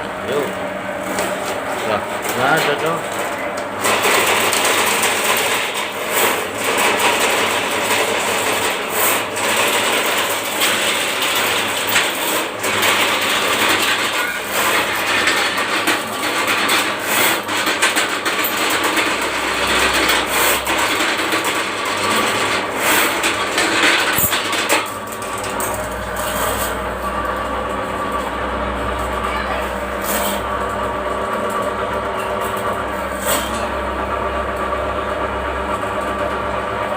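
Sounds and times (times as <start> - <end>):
drain cable rattling and scraping: 1.0 - 28.4.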